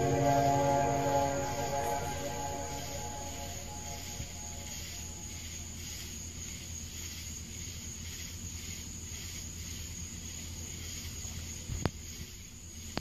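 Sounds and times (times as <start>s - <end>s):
steady low hum: 0.0s - 5.4s
pulsing insect chorus: 0.0s - 13.0s.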